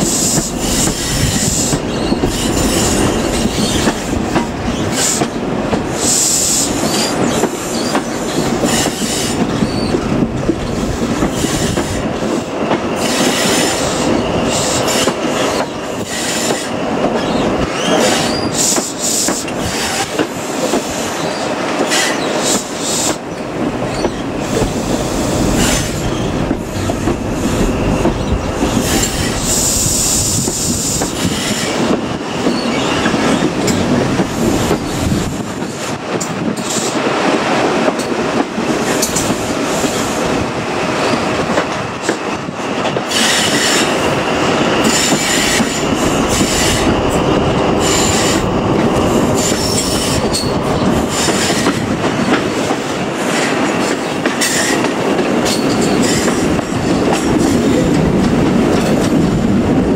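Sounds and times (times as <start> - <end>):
wheel on rail noise: 0.0 - 59.9
high wheel squeal: 0.1 - 5.4, 6.0 - 10.1, 13.0 - 20.1, 25.6 - 30.2, 30.8 - 33.5, 43.1 - 51.8.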